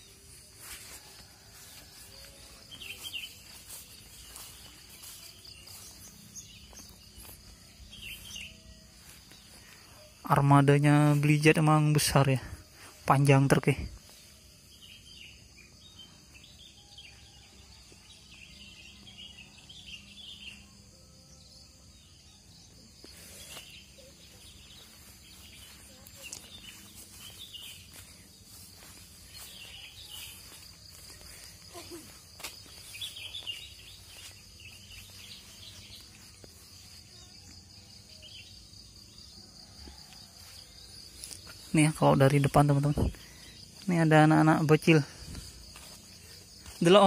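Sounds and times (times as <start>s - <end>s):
insect buzz: 0.0s - 10.4s, 12.2s - 47.0s
bird chirps: 1.3s - 10.4s, 22.0s - 47.0s.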